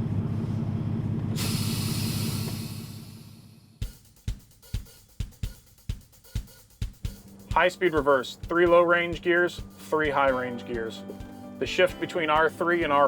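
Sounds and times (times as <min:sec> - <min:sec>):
hiss: 0:01.4 - 0:03.3
music with drum beat: 0:03.8 - 0:13.0.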